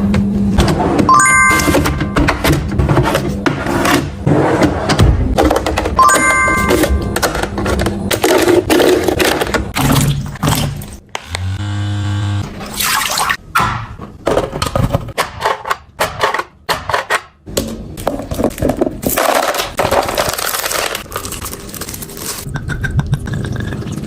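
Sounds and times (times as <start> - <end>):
plastic packaging rustling: 18.2 - 22.5.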